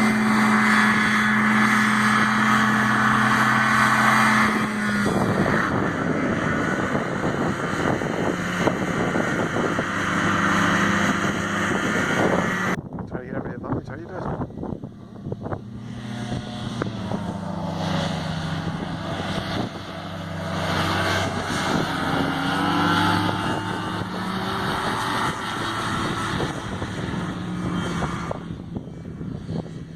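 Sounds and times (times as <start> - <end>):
hovercraft engine and fan: 0.0 - 29.9.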